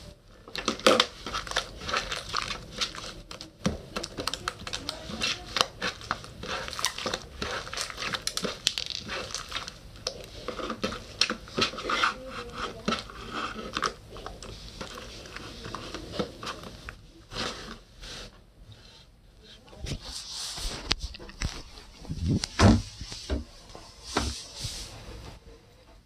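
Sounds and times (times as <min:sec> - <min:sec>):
slime squishing with sticky pops: 0:00.5 - 0:16.9.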